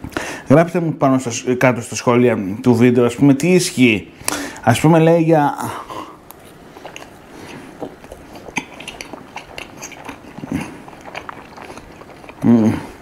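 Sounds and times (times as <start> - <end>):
chewing food: 5.9 - 13.0
wet mouth clicks: 6.2 - 13.0.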